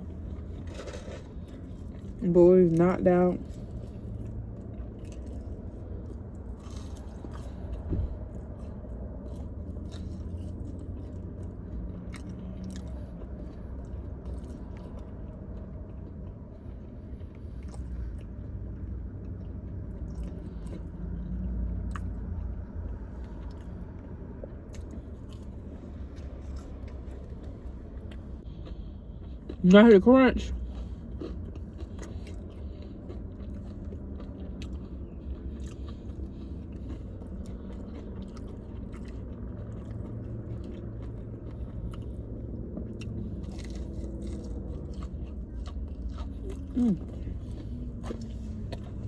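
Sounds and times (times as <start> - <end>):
person chewing food: 0.0 - 29.8, 30.4 - 49.0
low steady rumble: 0.0 - 49.0
small crunches: 0.3 - 2.2, 43.0 - 49.0.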